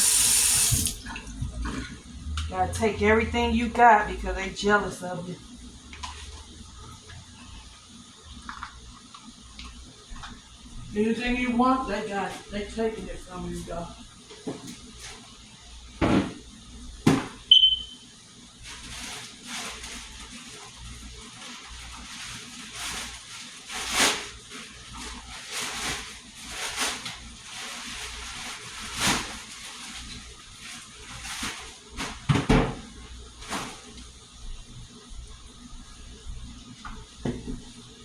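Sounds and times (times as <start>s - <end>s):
brief high tone: 17.5s - 18.0s.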